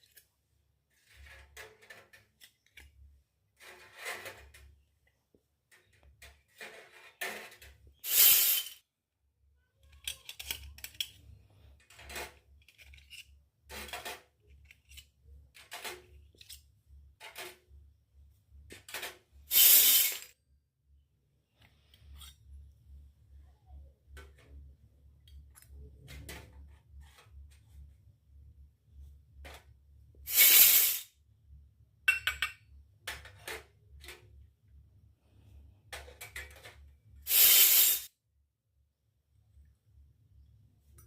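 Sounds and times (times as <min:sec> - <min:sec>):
toy kitchenware clinking: 0:07.4 - 0:08.8, 0:09.8 - 0:11.2, 0:18.7 - 0:20.3, 0:32.1 - 0:34.0.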